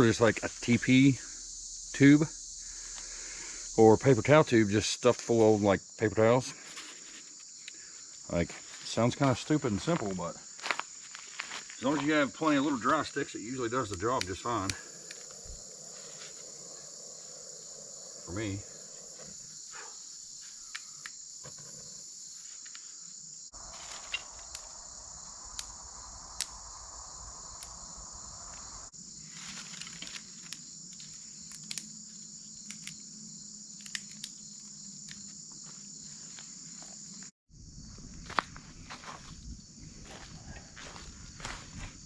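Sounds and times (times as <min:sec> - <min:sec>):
insects chirring: 0:00.0 - 0:42.0
small clicks and snaps: 0:30.0 - 0:31.9, 0:32.6 - 0:33.0, 0:33.8 - 0:34.4.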